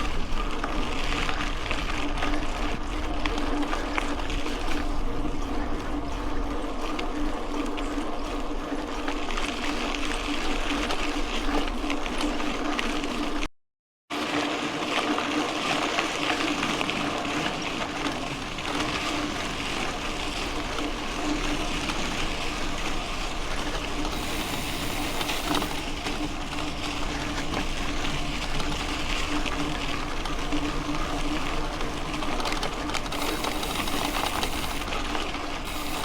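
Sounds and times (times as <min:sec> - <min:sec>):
bike tyres on gravel: 0:14.7 - 0:36.0
bike rattling: 0:17.1 - 0:36.0
steady low hum: 0:22.4 - 0:36.0.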